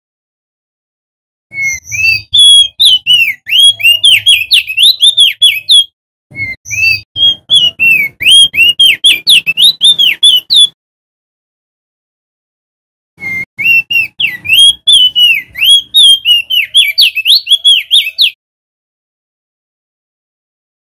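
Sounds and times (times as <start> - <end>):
bird singing whistled notes: 1.5 - 10.8, 13.2 - 18.4.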